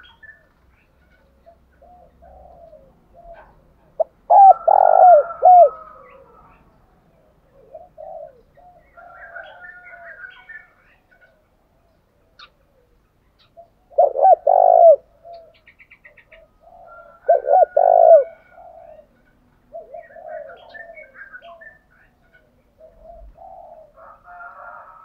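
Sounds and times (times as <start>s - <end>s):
doves cooing: 0.0s - 25.0s.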